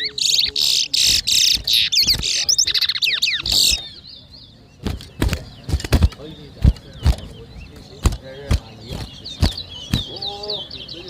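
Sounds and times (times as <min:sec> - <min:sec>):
finch warbling song: 0:00.0 - 0:11.0
sharp knocks: 0:04.8 - 0:07.3, 0:08.0 - 0:10.2.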